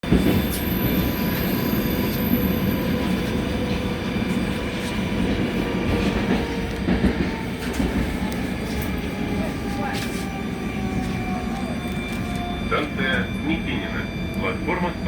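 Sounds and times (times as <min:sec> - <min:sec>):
train wheels rumbling on rails: 0:00.0 - 0:15.0
rail clicks: 0:03.0 - 0:10.3.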